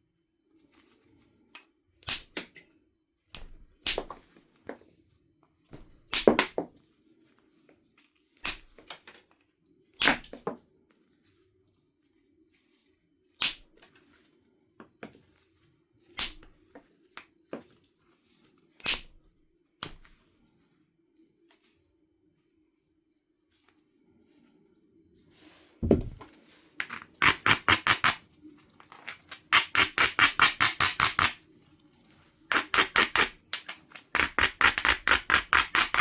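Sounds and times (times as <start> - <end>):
sharp strikes on flint stone: 25.8 - 26.2.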